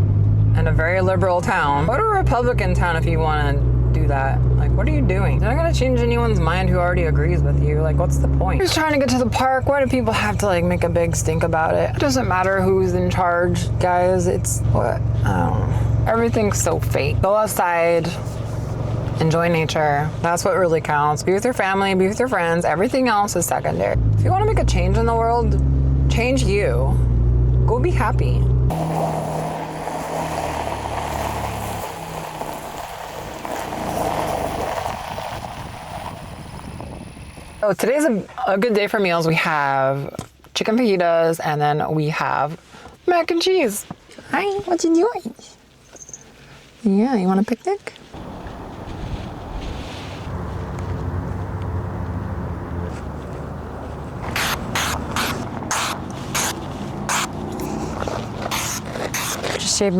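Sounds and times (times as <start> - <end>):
car road and engine noise: 0.0 - 37.6, 47.9 - 59.9
low engine hum: 0.0 - 37.6, 48.1 - 59.9
low steady rumble: 0.0 - 37.6, 48.1 - 59.9
aerosol can spraying: 54.2 - 57.8, 58.5 - 59.4.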